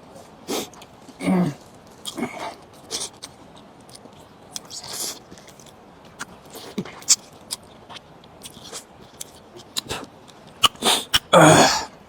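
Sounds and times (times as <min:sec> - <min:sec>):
chewing with wet clicks: 0:02.0 - 0:11.3.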